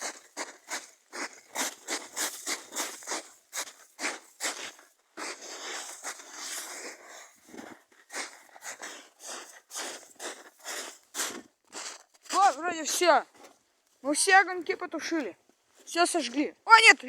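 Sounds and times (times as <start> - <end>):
boots scuffing snow: 0.0 - 13.6
boots stamping in snow: 0.0 - 13.6.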